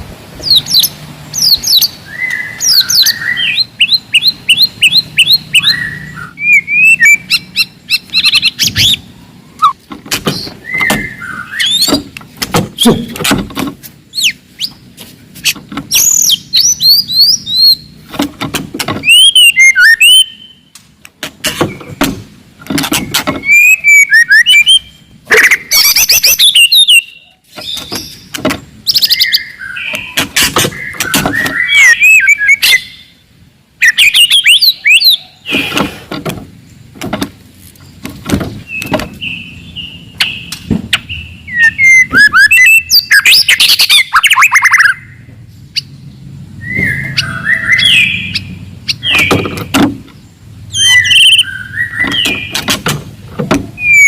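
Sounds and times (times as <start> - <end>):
bird singing whistles and trills: 0.4 - 12.1, 14.1 - 14.8, 15.4 - 18.0, 19.0 - 20.7, 23.0 - 33.2, 33.8 - 35.5, 38.6 - 46.0, 46.6 - 49.7, 50.7 - 52.8, 53.8 - 54.0.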